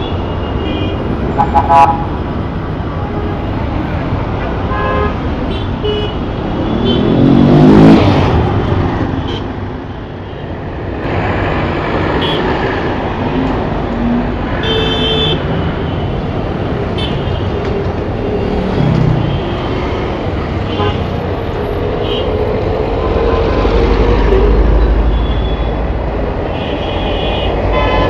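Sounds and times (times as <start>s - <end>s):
city street traffic: 0.0s - 28.0s
car horn: 0.4s - 2.1s, 14.6s - 15.5s, 26.5s - 28.0s.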